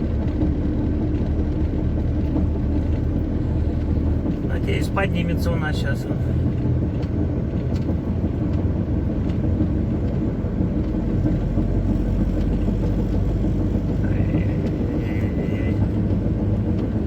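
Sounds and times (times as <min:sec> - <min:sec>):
truck diesel engine drone: 0:00.0 - 0:17.0.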